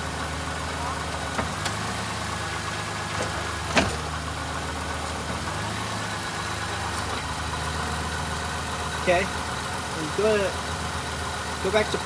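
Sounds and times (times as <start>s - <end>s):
car engine idling: 0.0s - 12.0s
transmission clunks: 3.0s - 4.3s.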